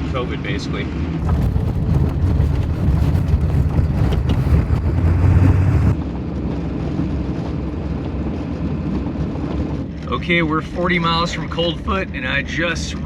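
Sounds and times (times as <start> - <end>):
wind and road rush: 0.0 - 11.1
diesel truck engine drone: 1.2 - 6.2.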